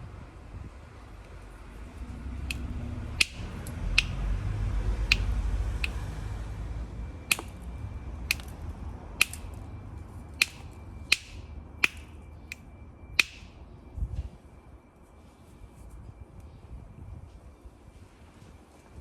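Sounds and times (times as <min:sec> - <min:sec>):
stone striking flint: 0:02.5 - 0:04.2, 0:05.1 - 0:06.0, 0:07.3 - 0:07.7, 0:08.3 - 0:08.6, 0:09.2 - 0:09.6, 0:10.4 - 0:12.2, 0:13.2 - 0:13.5.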